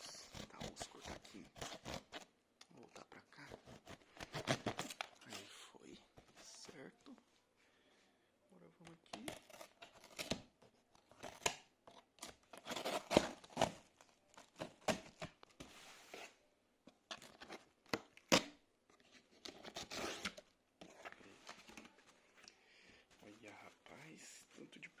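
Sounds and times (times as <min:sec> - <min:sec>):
packaging tearing and crinkling: 0:12.2 - 0:15.3.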